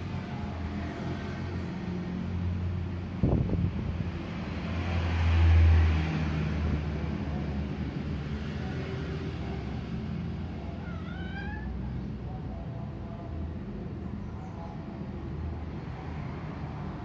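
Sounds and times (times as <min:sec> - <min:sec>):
cat meowing: 0:10.7 - 0:12.0.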